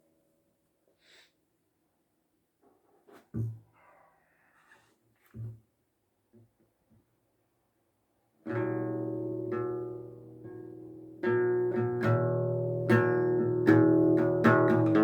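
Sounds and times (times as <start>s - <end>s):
acoustic guitar strumming chords: 8.5s - 15.0s.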